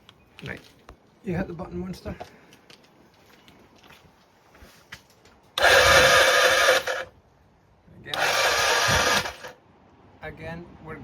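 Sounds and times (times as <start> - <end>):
starter motor cranking engine: 5.6 - 7.1, 8.1 - 9.6.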